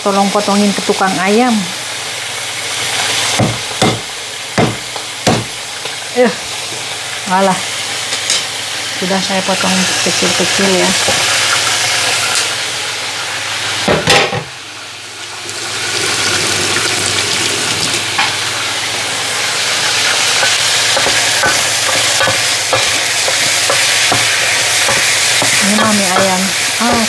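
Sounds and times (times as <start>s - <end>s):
chicken sizzling in oil: 0.0s - 27.0s.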